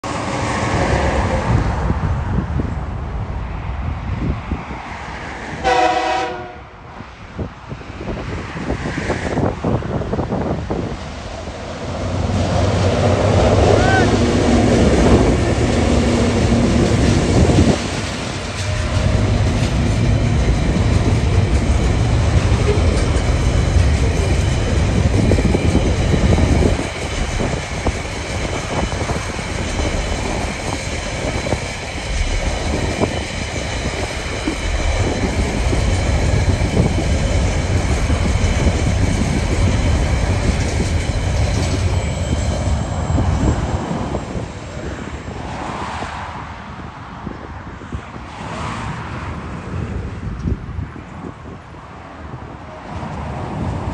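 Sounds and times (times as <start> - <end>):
diesel locomotive engine rumble: 0.0 - 47.8
wagons rolling on rails: 14.5 - 44.7.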